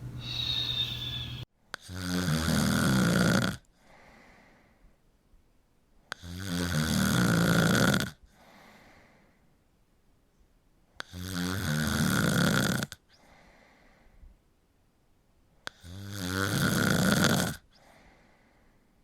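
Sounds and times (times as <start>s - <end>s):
soft breath: 0.2s - 1.5s, 3.8s - 5.0s, 8.3s - 9.6s, 13.1s - 14.5s, 17.7s - 19.0s
person snoring: 0.2s - 3.6s, 6.1s - 8.2s, 11.0s - 13.0s, 15.7s - 17.6s.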